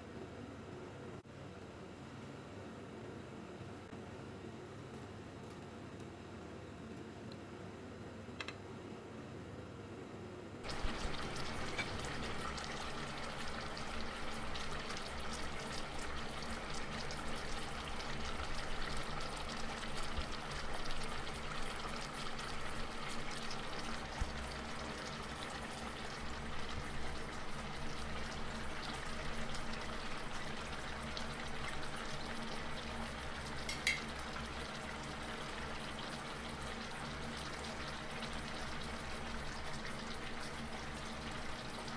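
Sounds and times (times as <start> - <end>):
broth bubbling in a pan: 10.6 - 41.9.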